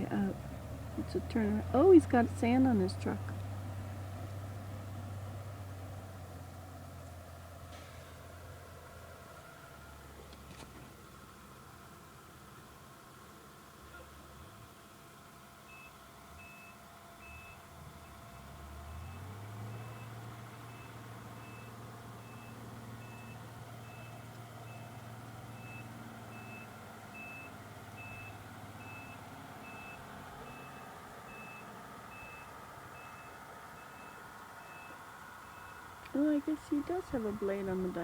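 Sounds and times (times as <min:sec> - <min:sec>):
truck engine revving: 0:00.0 - 0:09.4, 0:17.2 - 0:38.0
reversing alarm beeping: 0:15.7 - 0:17.6, 0:18.9 - 0:35.8.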